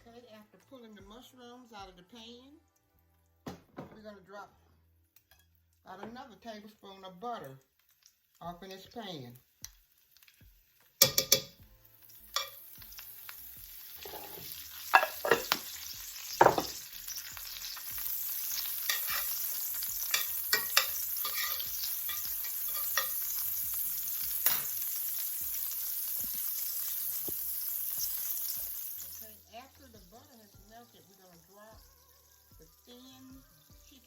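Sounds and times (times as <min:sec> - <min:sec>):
butter sizzling in a frying pan: 0:05.8 - 0:34.0
utensil knocking on a pan: 0:11.0 - 0:11.6, 0:14.0 - 0:15.7, 0:16.4 - 0:16.8.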